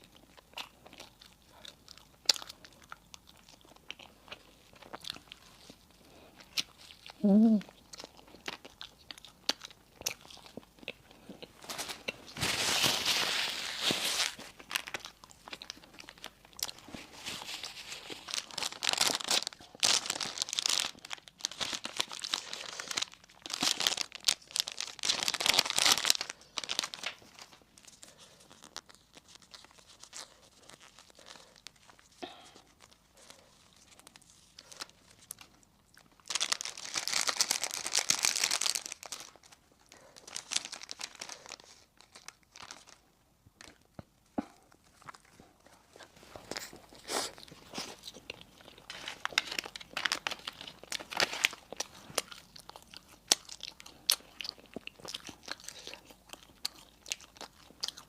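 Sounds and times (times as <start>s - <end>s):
crunching bites and chewing: 0.0s - 13.1s, 43.6s - 58.0s
wrapper crinkling and tearing: 11.6s - 43.9s, 44.8s - 58.0s.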